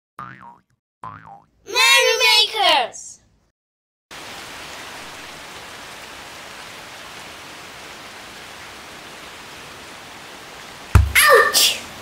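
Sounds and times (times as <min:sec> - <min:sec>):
steady rain: 0:04.1 - 0:12.0.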